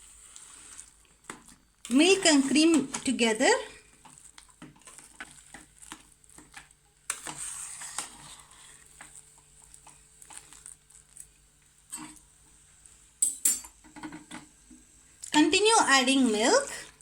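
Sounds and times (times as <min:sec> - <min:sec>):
spoon stirring mashed potatoes: 0:00.0 - 0:17.0
spoon tapping a pot: 0:13.2 - 0:14.3.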